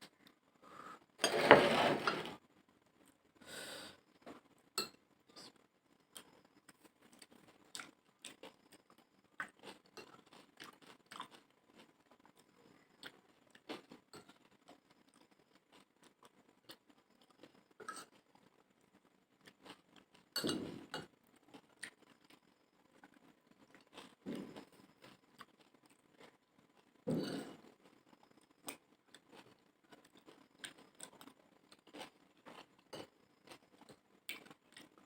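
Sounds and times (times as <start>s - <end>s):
person chewing crunchy snack: 7.1s - 17.6s, 21.4s - 35.0s.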